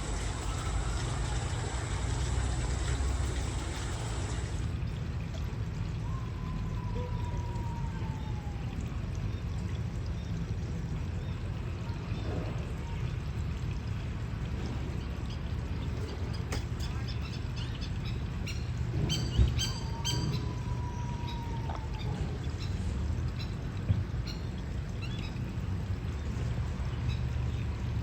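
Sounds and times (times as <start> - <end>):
running water: 0.0 - 28.0
bird ringing calls: 18.5 - 20.6.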